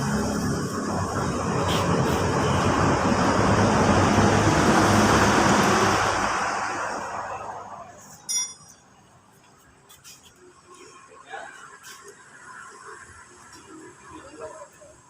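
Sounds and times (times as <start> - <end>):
sharp metallic clink: 8.2 - 8.8.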